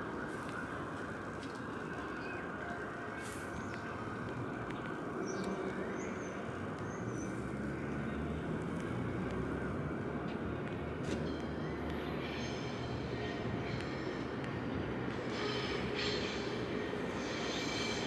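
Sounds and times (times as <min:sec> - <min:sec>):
train rumbling: 0:10.8 - 0:18.0.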